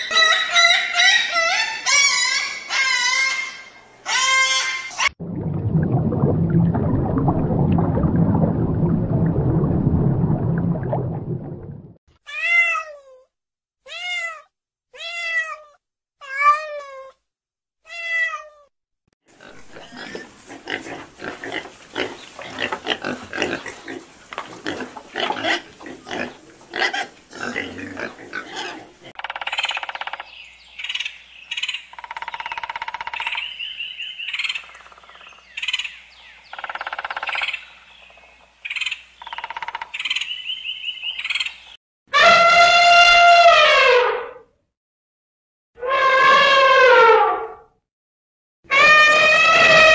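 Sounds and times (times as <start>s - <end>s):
aquarium bubbling and hum: 5.2s - 12.0s
pigs grunting and squealing: 19.4s - 29.0s.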